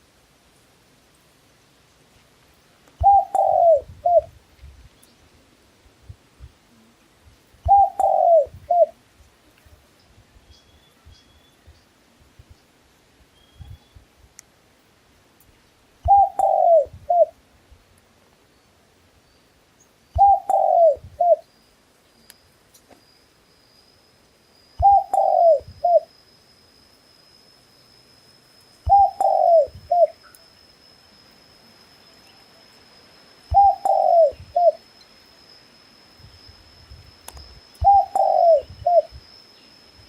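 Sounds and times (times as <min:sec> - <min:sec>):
dove cooing: 0:03.0 - 0:04.3, 0:07.6 - 0:09.0, 0:16.0 - 0:17.4, 0:20.2 - 0:21.4, 0:24.8 - 0:26.1, 0:28.9 - 0:30.2, 0:33.5 - 0:34.8, 0:37.8 - 0:39.1.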